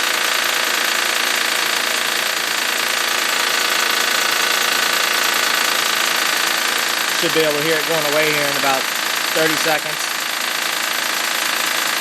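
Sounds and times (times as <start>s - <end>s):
high-pitched engine whine: 4.7s - 12.0s
car engine idling: 5.0s - 11.1s.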